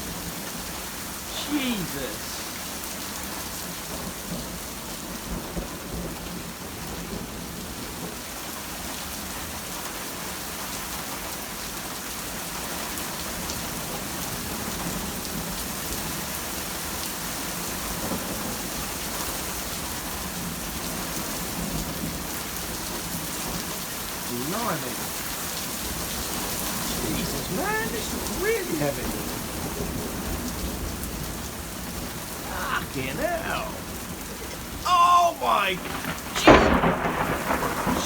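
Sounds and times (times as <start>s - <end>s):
heavy rain pouring: 0.0s - 38.0s
thunder rumbling: 35.7s - 38.0s.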